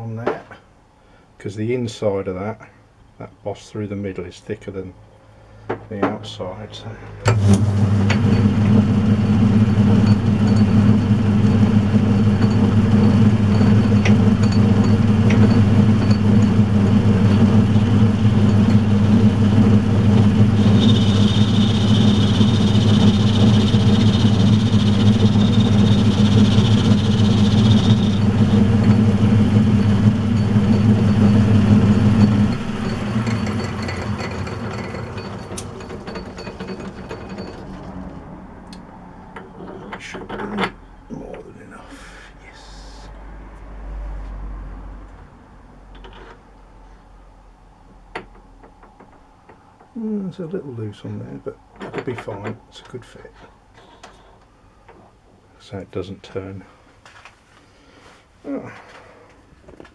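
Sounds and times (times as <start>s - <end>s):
lathe tool cutting hiss: 7.2s - 37.4s
lathe motor humming: 7.2s - 38.2s.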